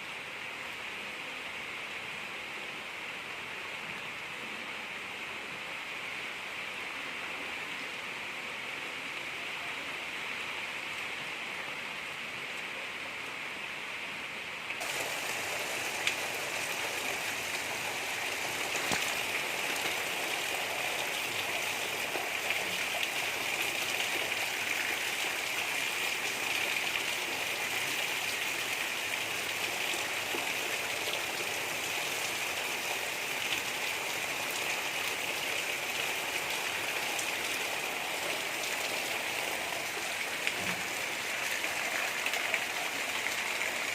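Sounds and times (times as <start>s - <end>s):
gentle rain hiss: 0.0s - 43.9s
rain drops ticking: 14.8s - 43.9s.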